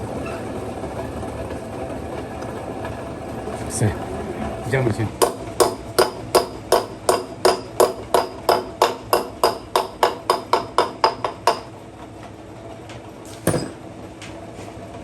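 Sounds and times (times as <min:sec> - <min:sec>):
hammer striking metal: 0:05.2 - 0:11.7, 0:13.4 - 0:13.8.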